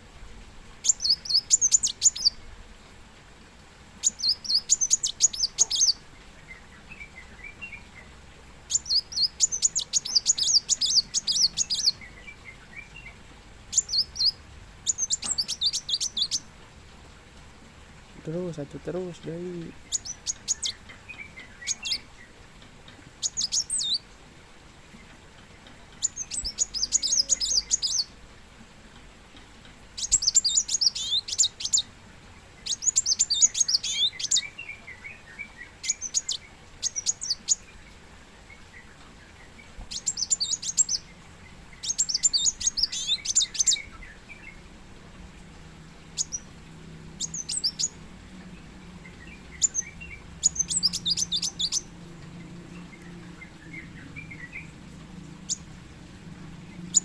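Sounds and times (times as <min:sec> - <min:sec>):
bird twittering: 0:00.8 - 0:02.4, 0:04.0 - 0:06.0, 0:08.7 - 0:12.1, 0:13.7 - 0:16.5, 0:18.2 - 0:22.1, 0:23.2 - 0:24.0, 0:26.0 - 0:28.1, 0:30.0 - 0:31.8, 0:32.6 - 0:34.8, 0:35.4 - 0:37.7, 0:39.9 - 0:41.1, 0:41.7 - 0:44.5, 0:46.2 - 0:46.5, 0:47.1 - 0:48.0, 0:49.1 - 0:51.9, 0:52.7 - 0:55.7, 0:56.8 - 0:57.0.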